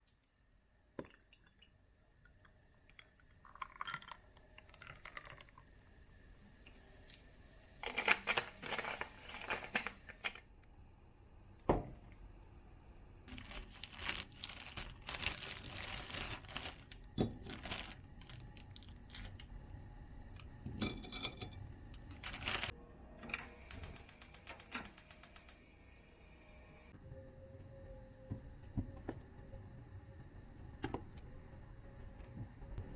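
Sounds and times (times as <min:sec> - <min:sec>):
rustling and crinkling: 0:07.8 - 0:10.4, 0:13.3 - 0:19.5, 0:22.2 - 0:22.7.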